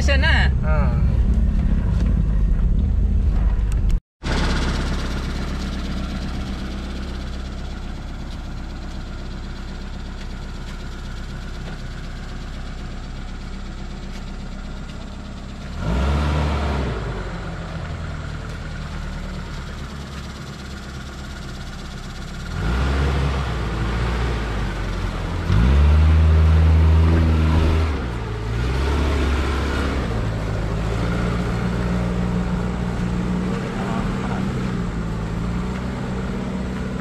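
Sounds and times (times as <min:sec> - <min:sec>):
vehicle engine and road noise: 0:00.0 - 0:37.0.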